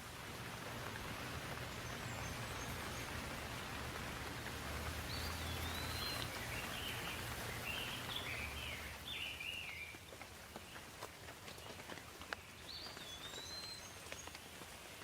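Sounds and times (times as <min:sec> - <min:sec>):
steady rain hissing: 0:00.0 - 0:15.0
bird chirping: 0:05.1 - 0:10.0.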